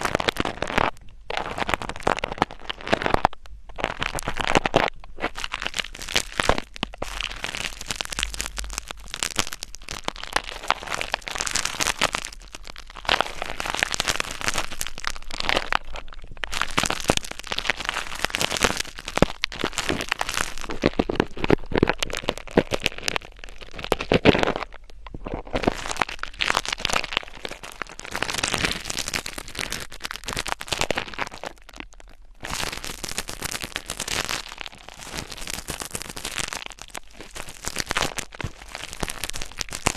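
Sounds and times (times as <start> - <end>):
crackling and scraping on microphone: 0.0 - 39.9.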